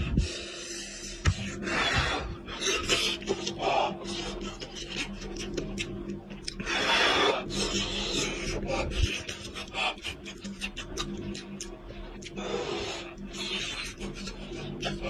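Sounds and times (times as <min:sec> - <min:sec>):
faint steady hum: 0:00.0 - 0:15.0
chewing with mouth clicks: 0:02.8 - 0:07.0, 0:08.9 - 0:12.6.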